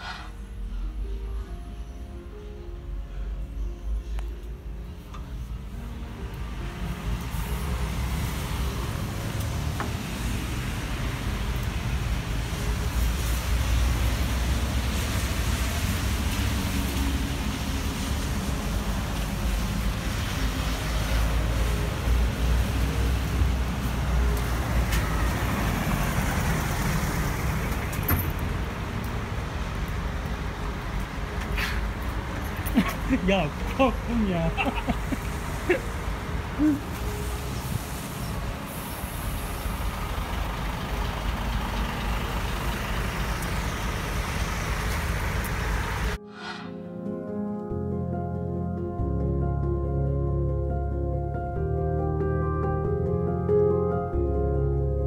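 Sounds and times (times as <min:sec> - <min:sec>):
tyres hissing on wet street: 0:00.0 - 0:00.4, 0:06.4 - 0:46.4
rain falling: 0:07.1 - 0:38.0.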